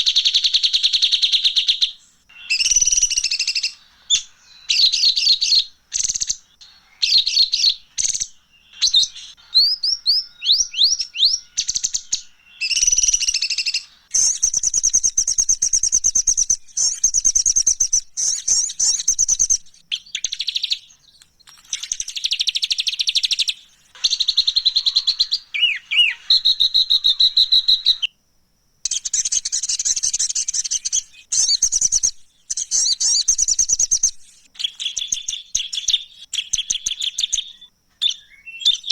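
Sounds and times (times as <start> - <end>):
rising whistled bird notes: 0.0 - 28.1, 28.9 - 38.9
songbird chattering trills: 0.0 - 28.1, 28.9 - 38.9.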